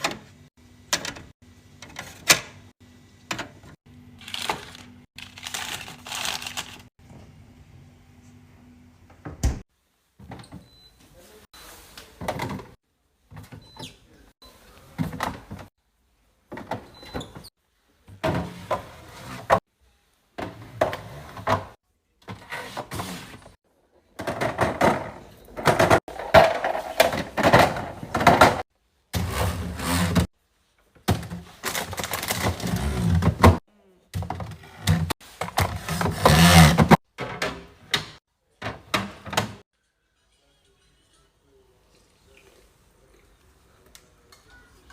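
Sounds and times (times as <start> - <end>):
food packages being handled: 4.2 - 6.9.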